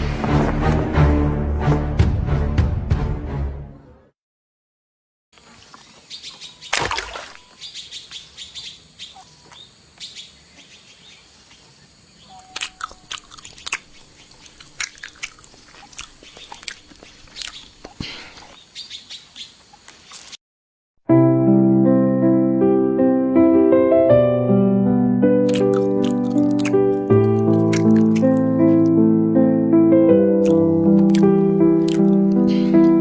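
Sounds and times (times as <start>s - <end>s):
small birds chirping: 5.4s - 20.2s
keyboard music: 21.1s - 33.0s.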